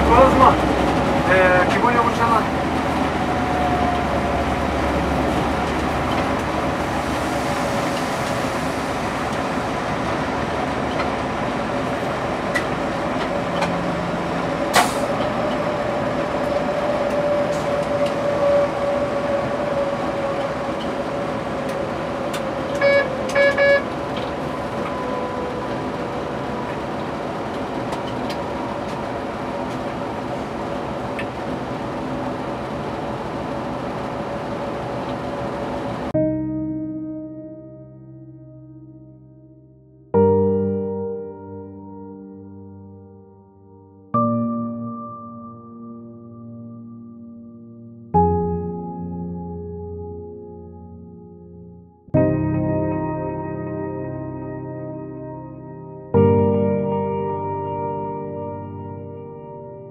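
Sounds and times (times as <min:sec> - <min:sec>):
train rumble and whine: 0:00.0 - 0:36.2
short tones: 0:22.7 - 0:24.0.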